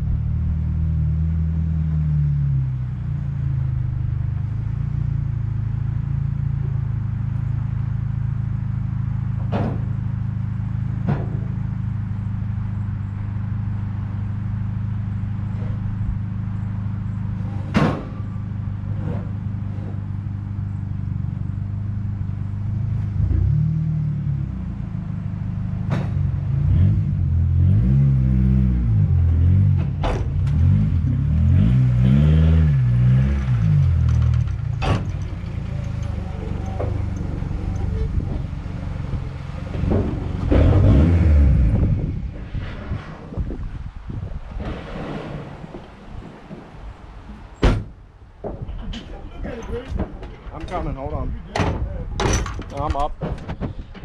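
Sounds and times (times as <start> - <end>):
truck engine running: 0.0 - 54.0
sharp clicks and knocks: 33.7 - 41.3, 45.7 - 54.0.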